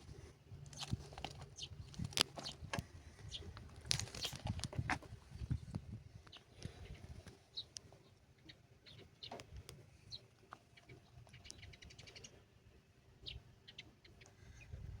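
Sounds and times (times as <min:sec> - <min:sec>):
faint bird chirps: 0:06.3 - 0:12.6, 0:13.2 - 0:15.0.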